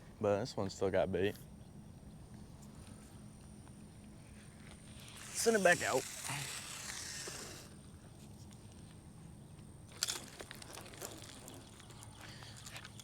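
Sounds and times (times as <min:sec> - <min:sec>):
fishing line running off reel: 0:04.6 - 0:08.0.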